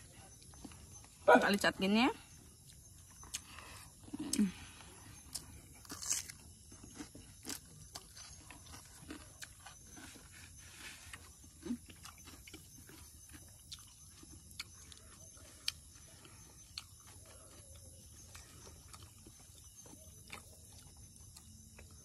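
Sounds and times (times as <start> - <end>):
chewing and lip smacks: 2.6 - 22.0.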